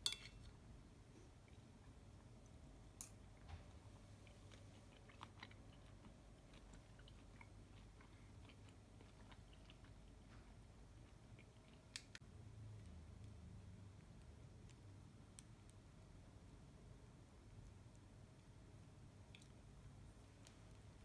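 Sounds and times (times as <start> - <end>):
faint small clicks and crackles: 11.4 - 15.9, 19.2 - 21.0.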